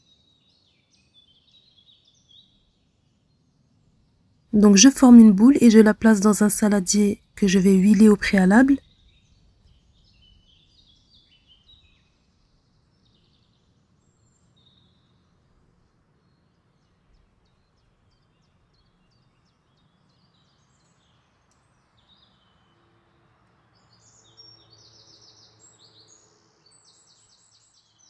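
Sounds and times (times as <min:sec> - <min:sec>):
faint birds chirping: 0:04.6 - 0:08.8.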